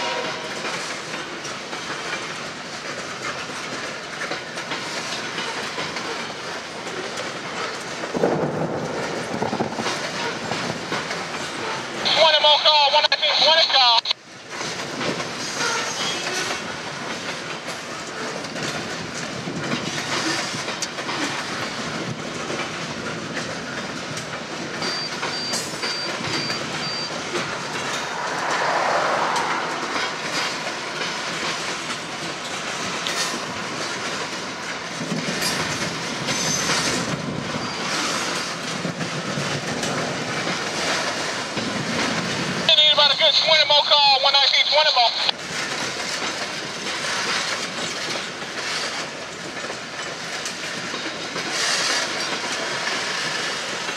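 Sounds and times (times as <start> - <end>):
freight train rolling past: 0.0 - 12.2, 14.2 - 43.6, 45.1 - 53.9
wheels clicking over rail joints: 0.5 - 8.6, 14.4 - 27.8, 30.2 - 42.7, 45.4 - 53.9.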